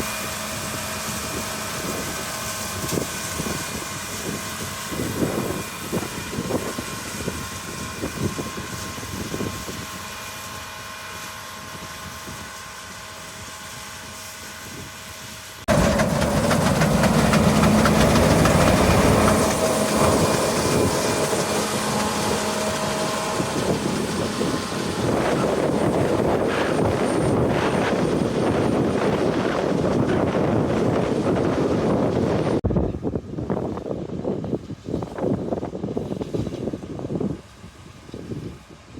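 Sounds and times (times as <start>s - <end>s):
farm machinery engines running: 0.0s - 32.6s
rough engine noise: 15.7s - 32.6s.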